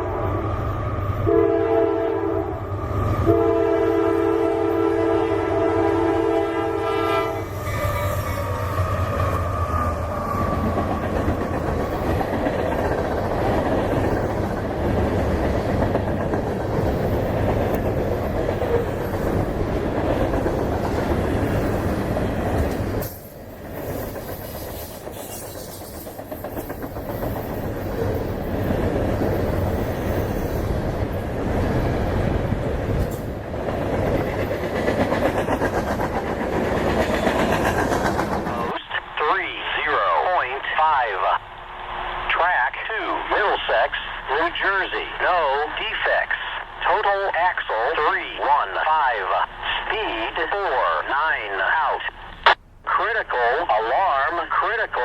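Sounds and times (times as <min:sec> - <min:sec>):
freight train wheels rumbling: 0:00.0 - 0:39.2
locomotive air horn blasts: 0:01.2 - 0:02.6, 0:03.2 - 0:08.5.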